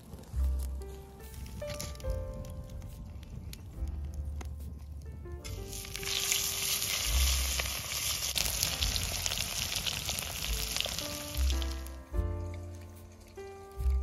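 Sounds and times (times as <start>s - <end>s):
potatoes sizzling in hot oil: 5.5s - 12.0s.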